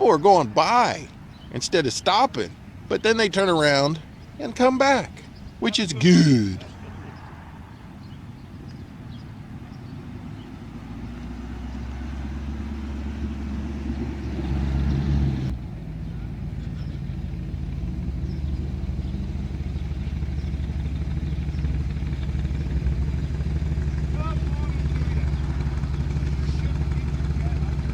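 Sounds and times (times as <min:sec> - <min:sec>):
vehicle engine running low drone: 0:06.2 - 0:27.9.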